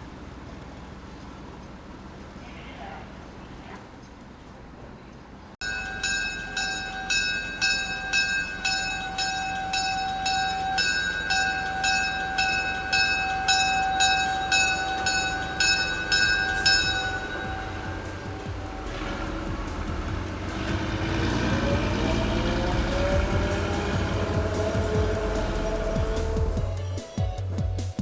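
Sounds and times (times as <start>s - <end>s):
locomotive bell ringing: 5.6s - 26.9s.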